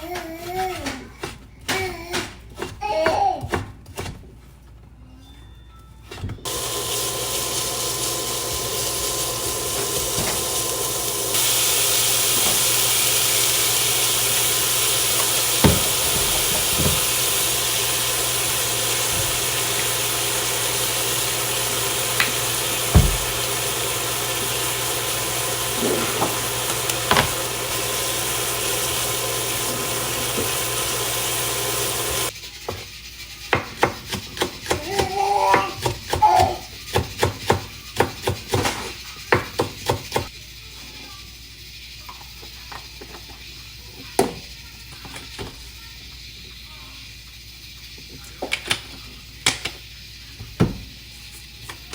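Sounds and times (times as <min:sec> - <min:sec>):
mechanical hiss: 0:06.5 - 0:32.4.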